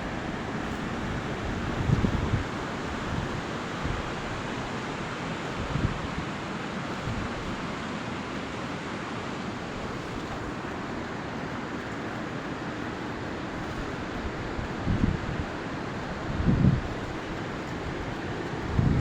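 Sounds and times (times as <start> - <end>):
wind buffeting microphone: 0.0 - 7.7, 13.5 - 19.0.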